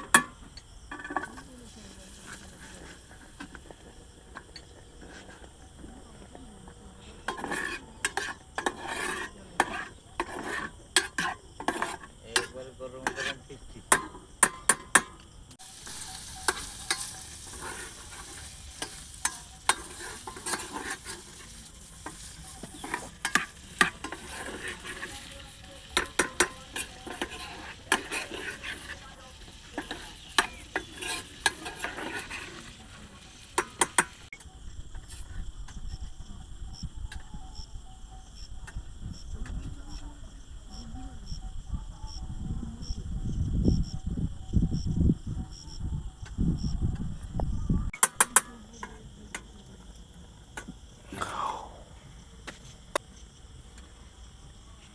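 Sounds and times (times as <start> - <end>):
metal spoon scraping in pot: 0.0 - 5.9, 7.0 - 15.0, 15.6 - 34.3
food sizzling in pan: 0.9 - 5.8, 15.6 - 34.4.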